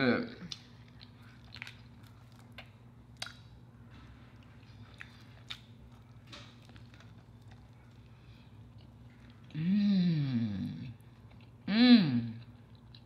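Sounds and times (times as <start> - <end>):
steady low hum: 0.0 - 13.0
faint chewing and biting: 0.4 - 9.6, 10.8 - 11.7, 12.3 - 13.0
food crunches: 0.5 - 3.6, 4.4 - 9.5.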